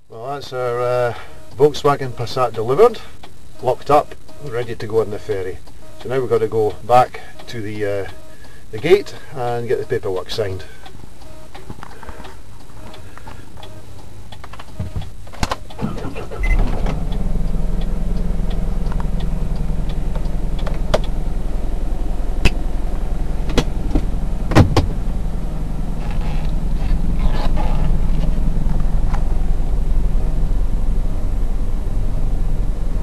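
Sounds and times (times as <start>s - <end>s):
truck engine starting and idling: 15.4s - 33.0s.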